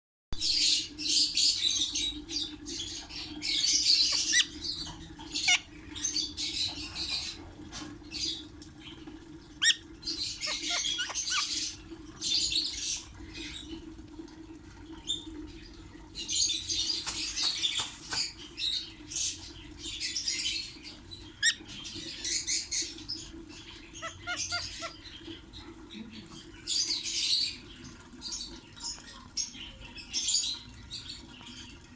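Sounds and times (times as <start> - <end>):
birds chirping and squawking: 0.4 - 13.9, 14.9 - 31.9
bird wings flapping and rustling: 16.7 - 19.0.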